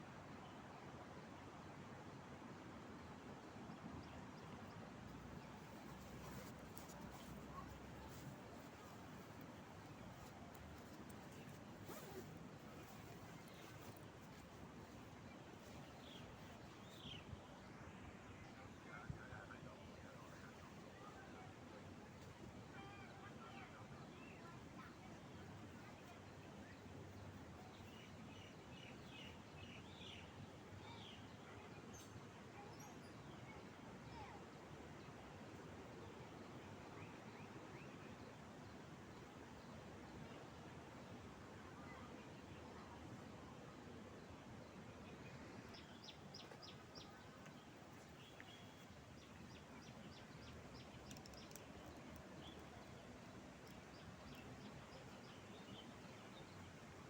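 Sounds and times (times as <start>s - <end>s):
steady outdoor hiss: 0.0s - 57.0s
background hiss: 2.4s - 18.4s
faint bird chirping: 45.0s - 56.7s.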